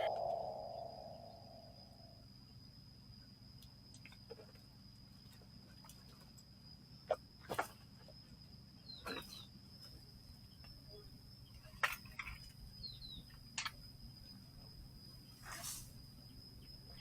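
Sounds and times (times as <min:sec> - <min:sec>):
faint steady high tone: 0:00.0 - 0:02.6.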